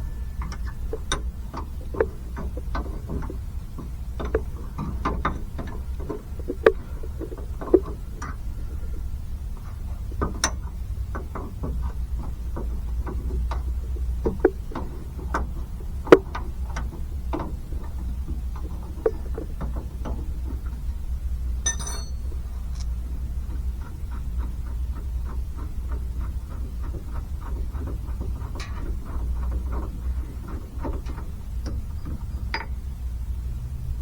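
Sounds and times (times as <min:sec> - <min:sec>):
steady low hum: 0:00.0 - 0:34.0
hand tools tapping on metal: 0:21.6 - 0:22.9
short rattle: 0:21.6 - 0:23.0.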